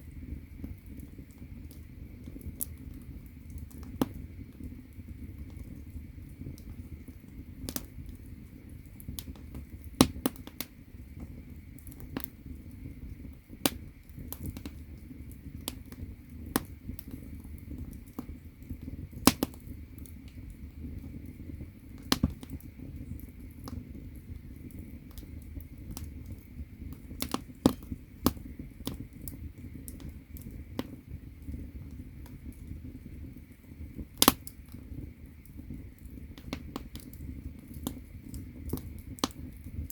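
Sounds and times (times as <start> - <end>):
firewood crackling and popping: 0.0 - 39.9
low rumble of flames: 0.0 - 39.9
loud wood snaps: 19.2 - 19.6, 34.2 - 34.6.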